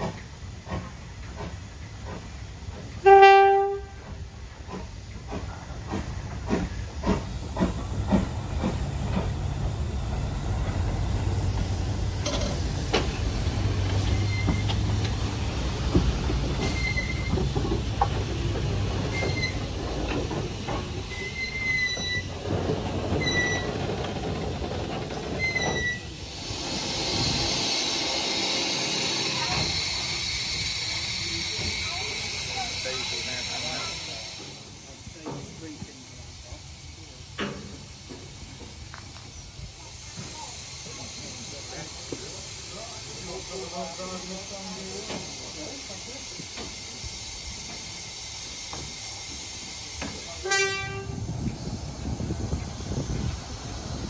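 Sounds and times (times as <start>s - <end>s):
hiss: 0.0s - 54.0s
train knocks and clicks: 0.0s - 54.0s
train rumble: 0.0s - 54.0s
wheel squeals: 13.9s - 14.9s, 16.6s - 17.7s, 19.0s - 19.8s, 21.1s - 24.3s, 25.0s - 26.1s.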